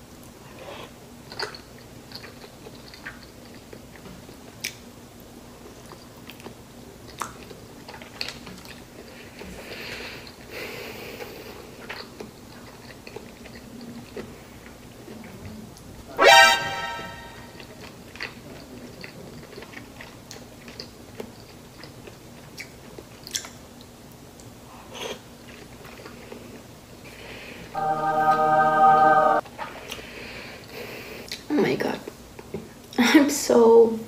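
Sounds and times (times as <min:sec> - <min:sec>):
close-up chewing: 0:00.5 - 0:04.8, 0:05.6 - 0:10.5, 0:11.2 - 0:15.9, 0:17.6 - 0:26.6
short loud pitched sound: 0:16.1 - 0:17.5, 0:27.8 - 0:29.4.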